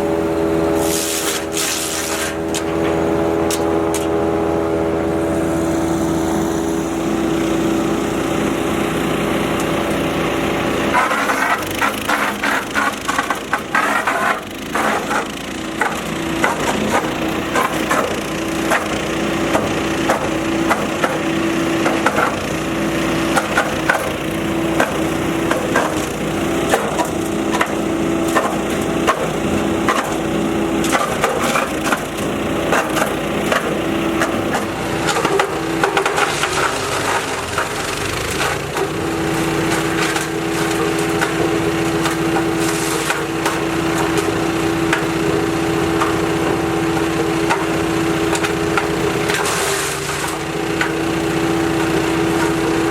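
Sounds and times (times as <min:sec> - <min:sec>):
wood chipper engine: 0:00.0 - 0:52.9
wood cracking and splintering: 0:47.4 - 0:51.0.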